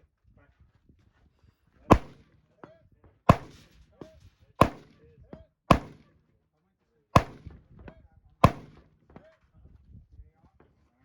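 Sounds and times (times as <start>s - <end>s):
rifle shots: 1.9s - 2.2s, 3.3s - 3.7s, 4.6s - 4.9s, 5.7s - 6.1s, 7.2s - 7.5s, 8.4s - 8.8s.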